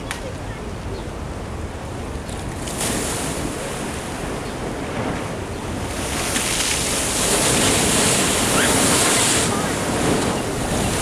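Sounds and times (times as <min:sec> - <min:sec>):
wind buffeting the microphone: 0:00.0 - 0:11.0
ocean surf rushing: 0:02.5 - 0:11.0.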